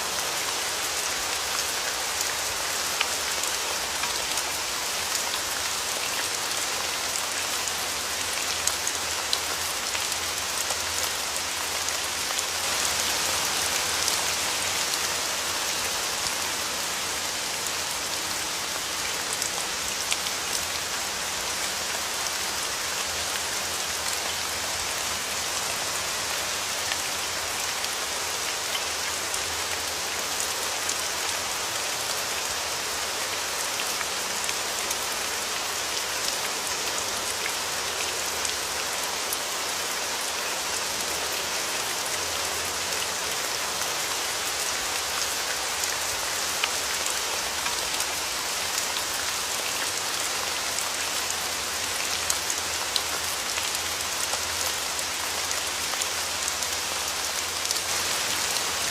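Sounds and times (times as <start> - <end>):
rain hissing: 57.8 - 58.9.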